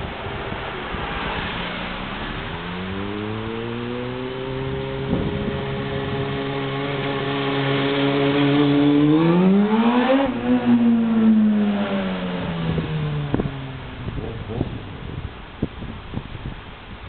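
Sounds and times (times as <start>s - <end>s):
motorcycle engine revving: 2.4s - 15.2s.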